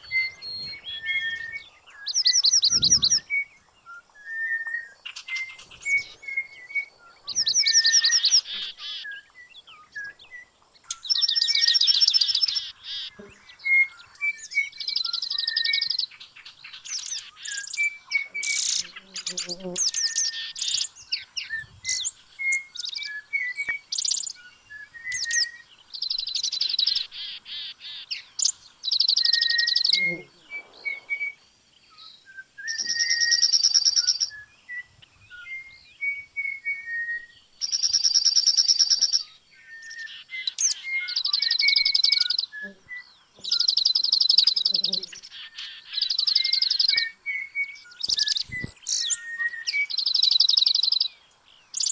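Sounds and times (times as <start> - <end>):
bird trilling: 0.0 - 3.5
bird whistles and chirps: 0.0 - 51.9.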